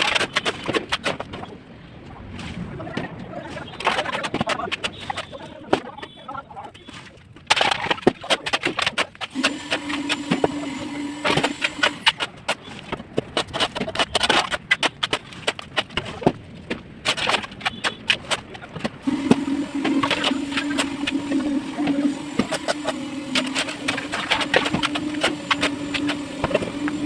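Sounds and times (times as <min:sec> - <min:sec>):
steady machine hum: 0:09.3 - 0:12.2, 0:19.0 - 0:27.0.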